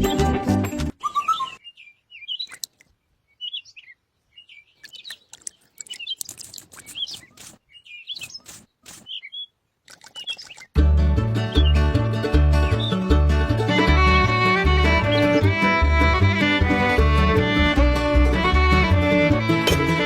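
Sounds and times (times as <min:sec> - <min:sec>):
birds chirping: 0:00.9 - 0:10.8, 0:12.6 - 0:13.1, 0:13.8 - 0:16.5.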